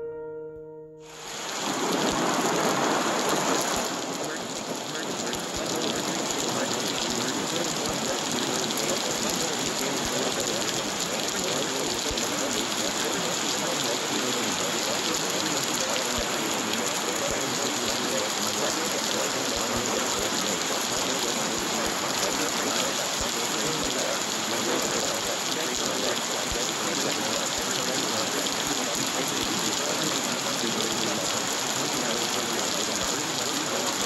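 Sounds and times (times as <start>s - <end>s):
short musical tone: 0.0s - 1.7s
rain pattering: 1.1s - 34.0s.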